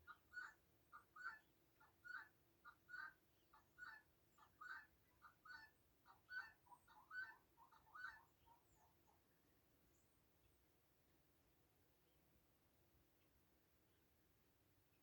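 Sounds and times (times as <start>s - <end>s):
fowl calling: 0.1s - 8.7s.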